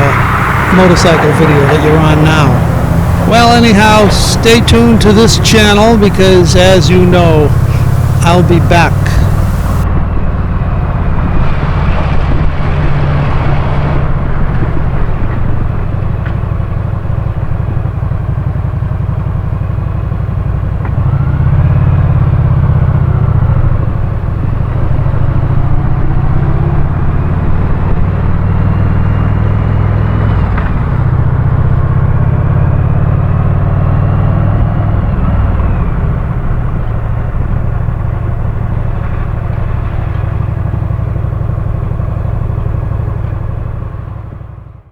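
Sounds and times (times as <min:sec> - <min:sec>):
motorcycle engine running: 0:00.0 - 0:11.4
road and wind noise: 0:00.0 - 0:44.9.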